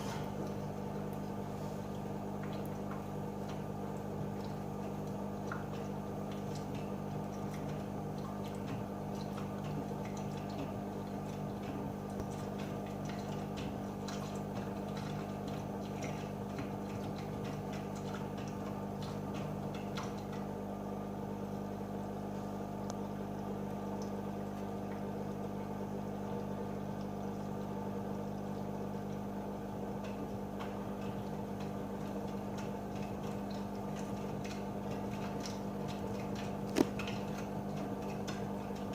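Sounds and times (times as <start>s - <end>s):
washing machine motor hum: 0.0s - 38.9s
water sloshing: 29.8s - 38.9s.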